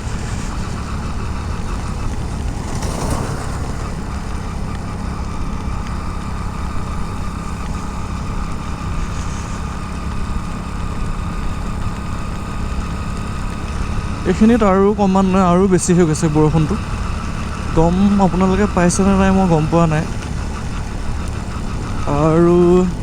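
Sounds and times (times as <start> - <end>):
motorcycle engine running: 0.0 - 23.0
rain hiss: 0.0 - 23.0
road noise: 0.0 - 23.0
wind: 0.0 - 23.0
brief whoosh: 2.5 - 5.0.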